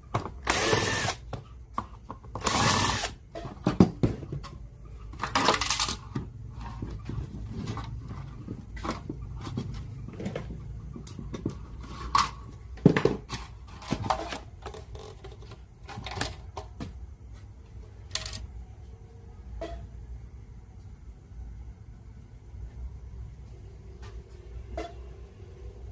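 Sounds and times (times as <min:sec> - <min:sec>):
plastic parts clicking and knocking: 0:00.1 - 0:16.9, 0:18.1 - 0:18.5.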